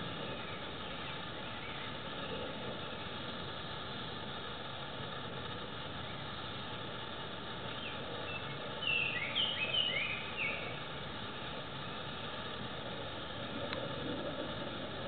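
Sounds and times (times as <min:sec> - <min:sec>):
background hiss: 0:00.0 - 0:15.0
bird call notes: 0:07.8 - 0:10.8.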